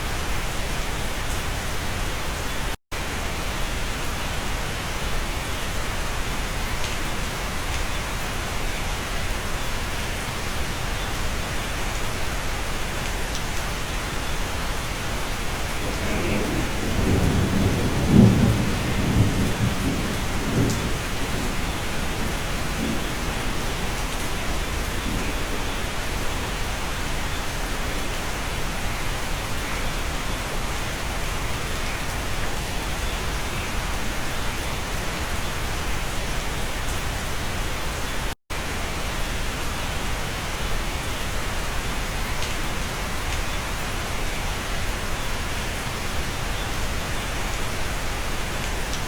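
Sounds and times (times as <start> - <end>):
rain hissing: 11.5 - 32.4.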